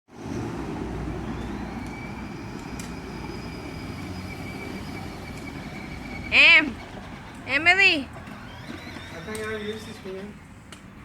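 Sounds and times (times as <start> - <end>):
motorcycle engine running: 3.1 - 10.2.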